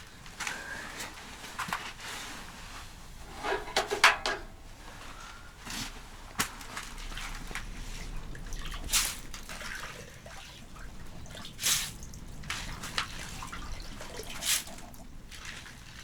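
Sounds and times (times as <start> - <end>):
water dripping: 6.6 - 16.0
water splashing: 6.8 - 16.0.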